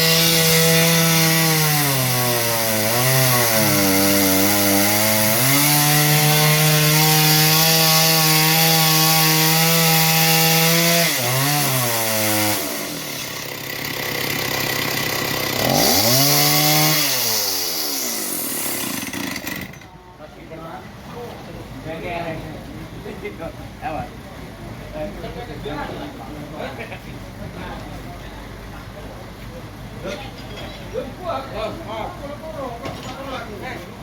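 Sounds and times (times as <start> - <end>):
engine-driven saw cutting log: 0.0 - 19.9.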